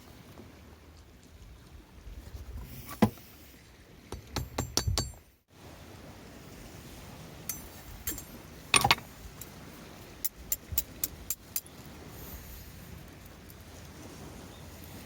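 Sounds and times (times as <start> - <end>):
metal objects clattering: 7.5 - 9.1
metallic clicks and clinks: 7.5 - 9.1.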